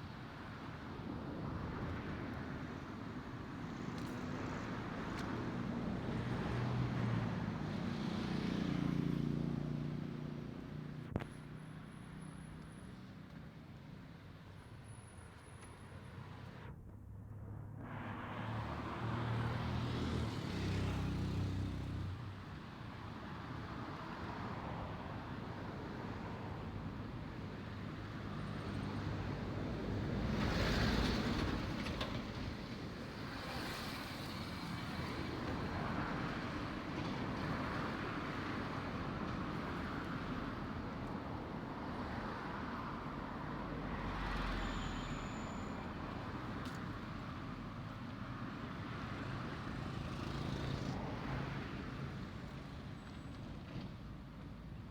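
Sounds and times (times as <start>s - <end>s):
vehicles passing on road: 0.0s - 54.9s
engine low drone: 15.4s - 20.4s
loud vehicle passing: 17.3s - 22.1s.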